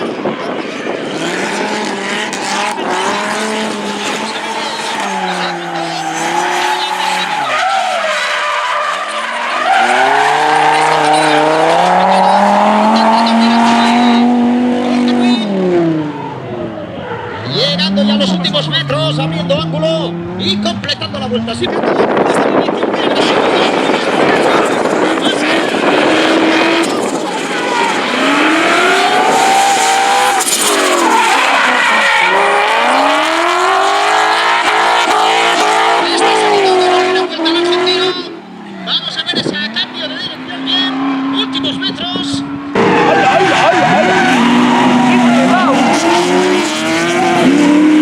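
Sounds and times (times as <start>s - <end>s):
car engine revving: 0.0s - 48.0s
tyres squealing: 1.5s - 14.2s, 24.6s - 47.6s.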